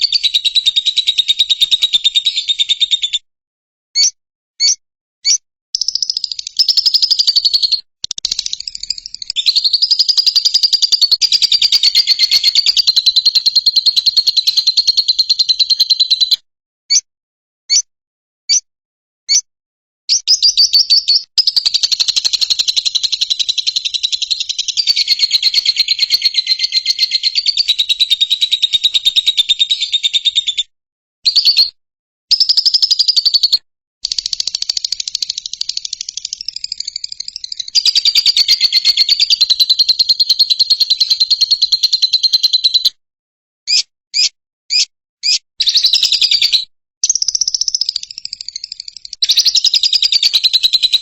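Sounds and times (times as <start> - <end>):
lovebird chattering trills: 5.8 - 16.3, 20.1 - 30.4.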